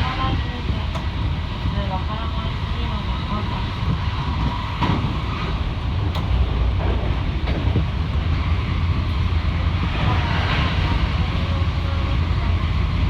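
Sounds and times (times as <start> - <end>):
electric train rumbling: 0.0 - 13.0
faint clicks from rails: 0.8 - 1.2, 6.0 - 8.4.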